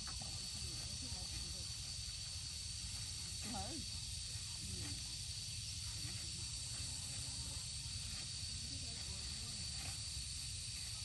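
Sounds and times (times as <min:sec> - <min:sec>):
outdoor hiss: 0:00.0 - 0:11.0.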